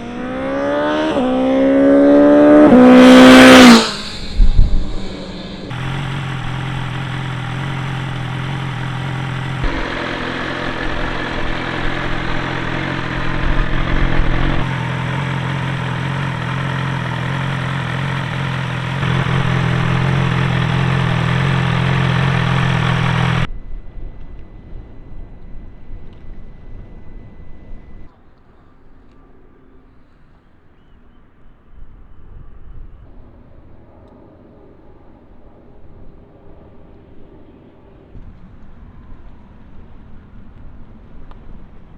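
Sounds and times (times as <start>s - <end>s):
motorcycle engine idling: 0.0s - 23.5s.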